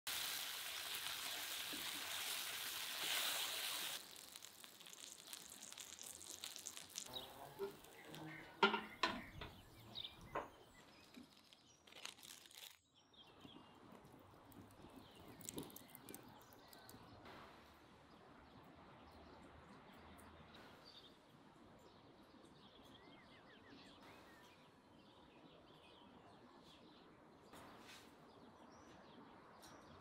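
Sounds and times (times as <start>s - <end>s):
food sizzling in a pan: 0.0s - 9.6s.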